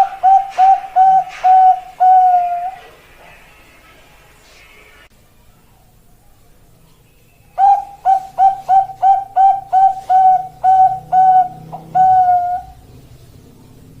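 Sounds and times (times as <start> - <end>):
dove cooing: 0.0 - 3.0, 7.6 - 12.9.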